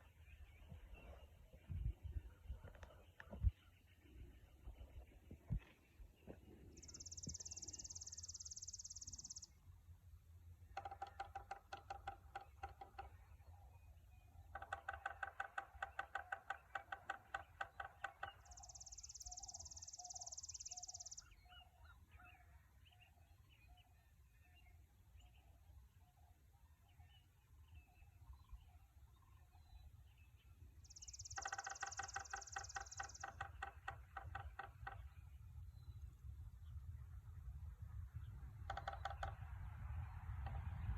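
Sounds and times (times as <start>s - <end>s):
woodpecker knocking on pole: 10.6s - 13.3s, 14.5s - 18.5s, 31.3s - 35.2s, 38.6s - 39.5s.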